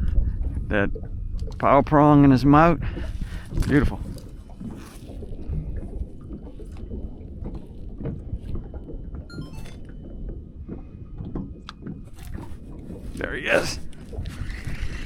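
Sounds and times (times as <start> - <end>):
wind and water rumble: 0.0 - 15.0.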